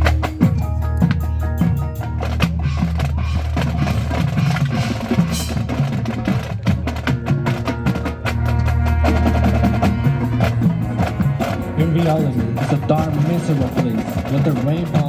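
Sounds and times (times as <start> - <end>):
marching percussion clicks and drums: 0.0 - 15.0
low brass notes: 7.5 - 14.9.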